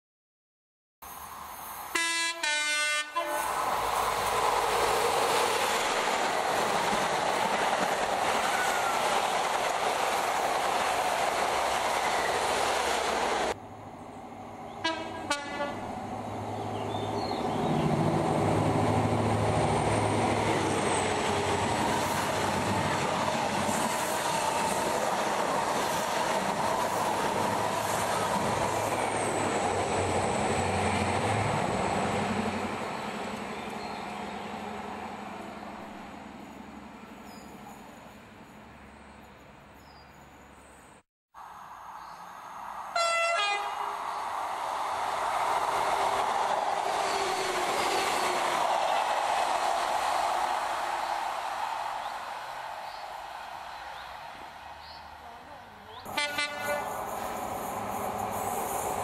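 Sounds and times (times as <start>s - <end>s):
train rumbling past: 1.0s - 39.9s, 41.4s - 59.0s
diesel train engine: 1.2s - 38.9s, 42.6s - 59.0s
two-tone train horn: 1.9s - 3.5s, 14.8s - 15.9s, 43.0s - 43.9s, 56.1s - 57.0s.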